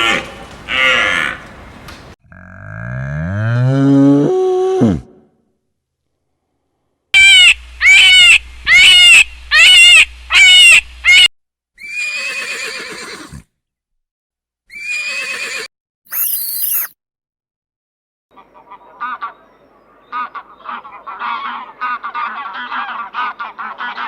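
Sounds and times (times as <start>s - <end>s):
brief high-pitched sound: 16.1s - 16.9s.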